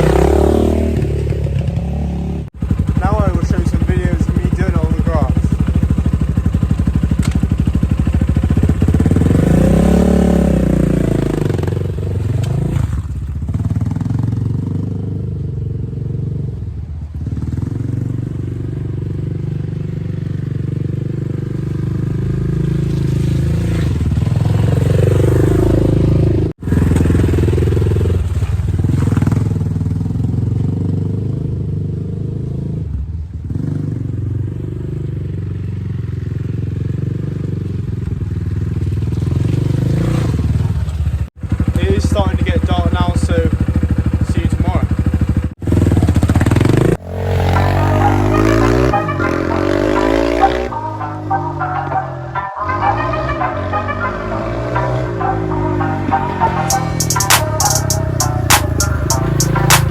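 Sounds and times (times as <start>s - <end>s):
dirt bike engine revving: 0.0s - 15.2s, 21.3s - 30.8s, 41.4s - 59.9s.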